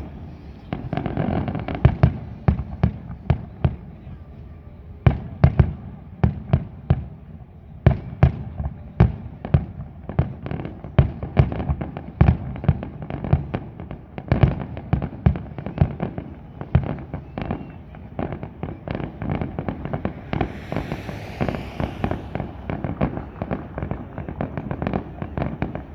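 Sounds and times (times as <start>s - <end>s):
fireworks hissing crackle: 18.4s - 25.0s.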